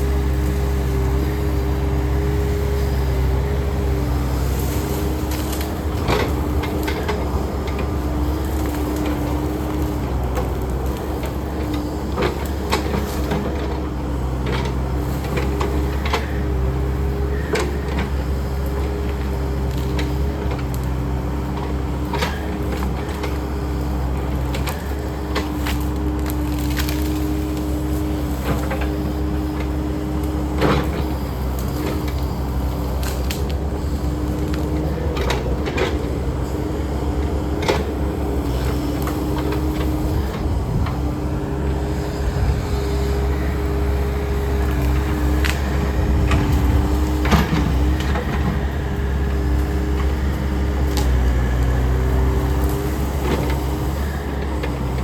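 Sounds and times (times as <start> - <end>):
diesel engine humming: 0.0 - 55.0
wood cracking and snapping: 24.0 - 36.0, 43.1 - 48.8.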